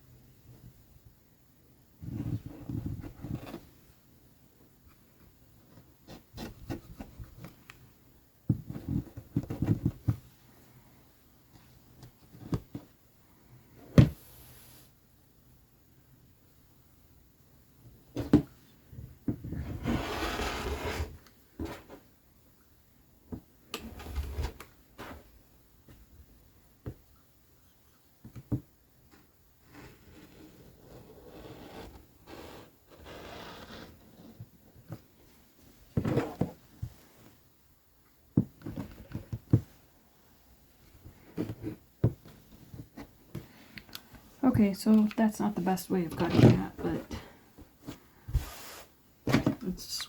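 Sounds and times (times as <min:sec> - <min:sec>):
fabric rustling and sliding: 0:19.5 - 0:21.2, 0:47.1 - 0:49.0.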